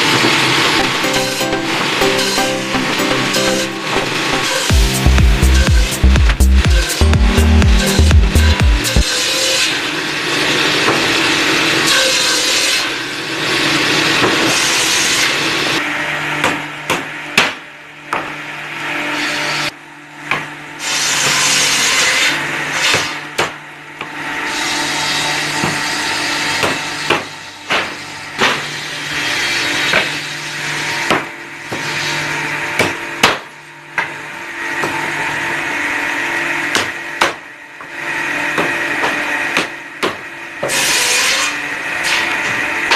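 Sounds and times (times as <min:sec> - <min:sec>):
power tool running on wood: 0:00.0 - 0:42.9
steady low hum: 0:02.8 - 0:09.1.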